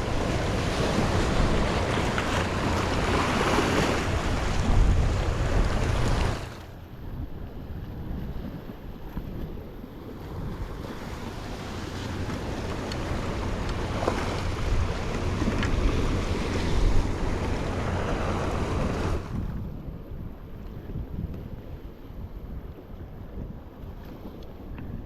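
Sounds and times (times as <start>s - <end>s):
sea waves washing on rocks: 0.0s - 19.6s
wind buffeting microphone: 0.0s - 25.0s.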